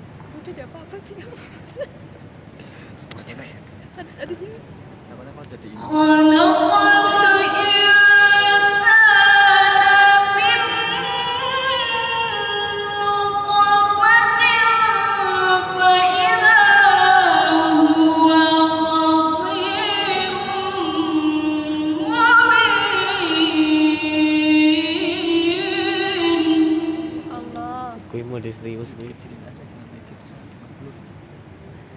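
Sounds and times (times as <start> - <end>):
woman reciting melodically: 0.3 - 1.9, 4.0 - 4.6, 5.8 - 28.0.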